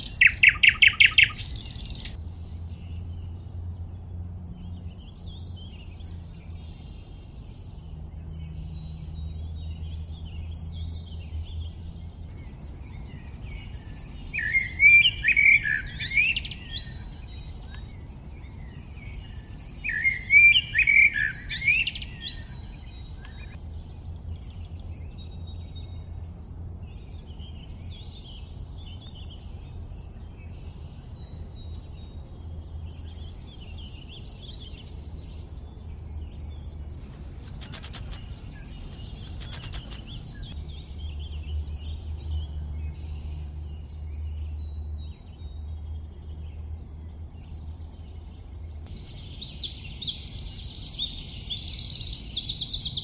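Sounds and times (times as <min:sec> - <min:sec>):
small birds chirping: 0:00.0 - 0:53.0
steady low rumble: 0:09.1 - 0:14.8, 0:22.6 - 0:44.4.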